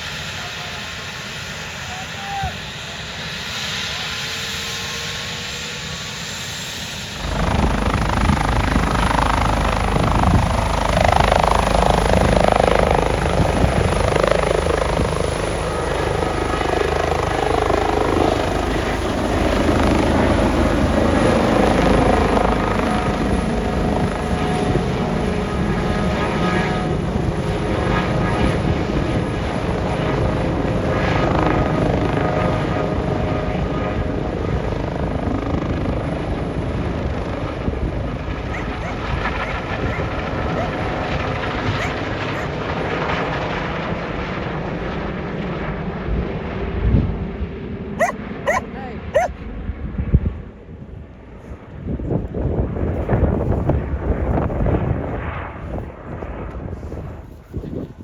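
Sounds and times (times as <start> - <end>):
helicopter rotors and engine: 0.0 - 49.7.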